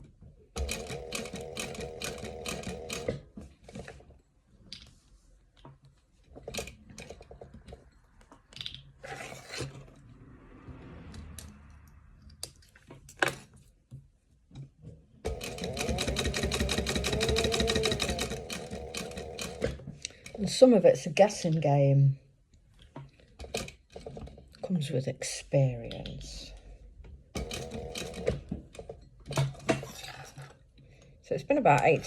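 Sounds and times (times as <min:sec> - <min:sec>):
sewing machine stitching: 0:00.6 - 0:04.1, 0:15.2 - 0:20.5, 0:27.4 - 0:30.2.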